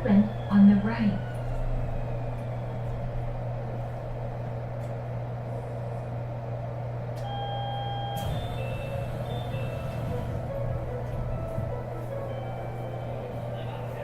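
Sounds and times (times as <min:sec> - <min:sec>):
train car low hum: 0:00.0 - 0:14.0
electronic door chime: 0:07.2 - 0:10.1.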